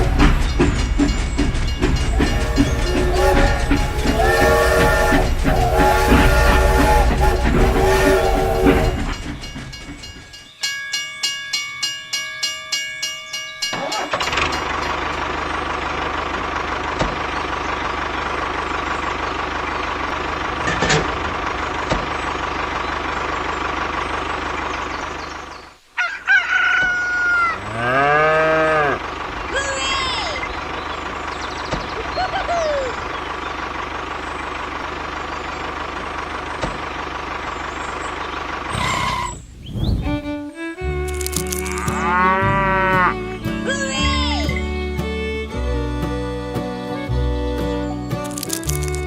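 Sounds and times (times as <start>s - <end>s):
short evenly spaced tonal notes: 0.0s - 16.0s, 40.2s - 49.0s
rooster crowing: 2.2s - 9.0s, 26.0s - 29.0s.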